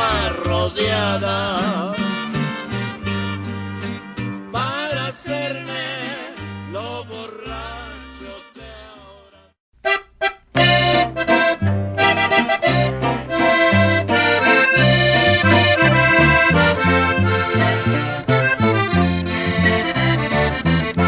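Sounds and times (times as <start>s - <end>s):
button accordion melody: 0.0s - 4.4s, 9.8s - 21.0s
bass line: 0.0s - 21.0s.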